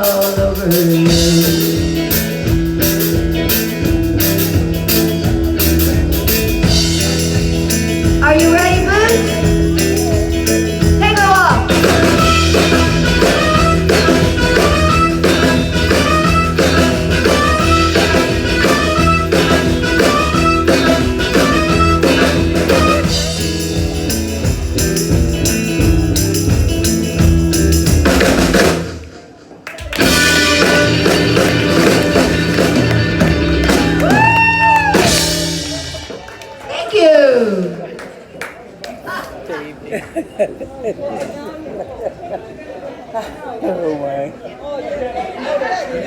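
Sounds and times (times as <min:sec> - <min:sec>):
live band playing upbeat song: 0:00.0 - 0:36.6.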